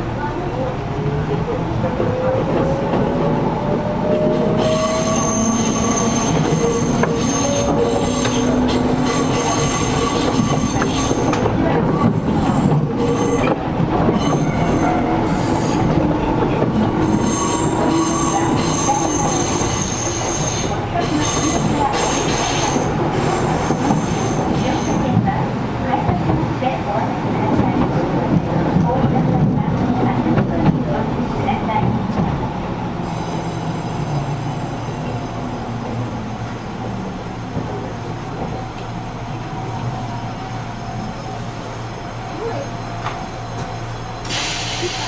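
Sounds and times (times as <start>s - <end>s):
wheel and rail noise: 0.2s - 45.0s
wheels squealing: 2.0s - 11.5s, 12.2s - 25.1s.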